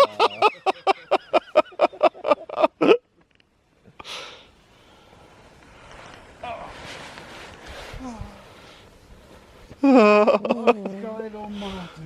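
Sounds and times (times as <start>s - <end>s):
man laughing hard: 0.0s - 3.0s
breathy rustle: 4.0s - 10.2s.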